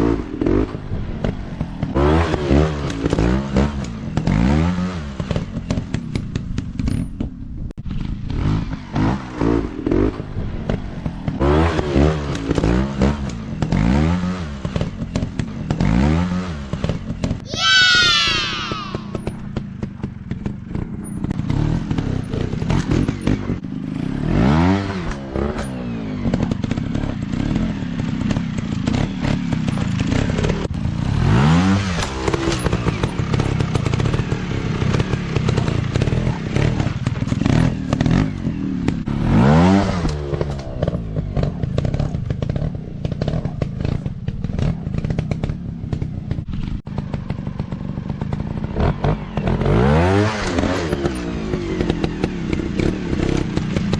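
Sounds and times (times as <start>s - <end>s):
dirt bike engines revving: 17.5s - 19.3s.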